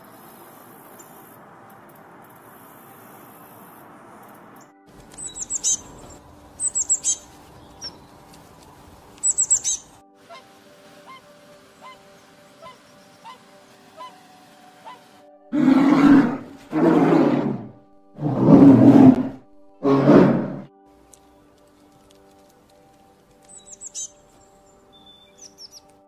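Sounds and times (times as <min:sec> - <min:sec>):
steady hiss: 0:00.0 - 0:01.6, 0:07.2 - 0:15.3
high-pitched chirping calls: 0:05.1 - 0:08.1, 0:09.2 - 0:10.4, 0:23.5 - 0:25.8.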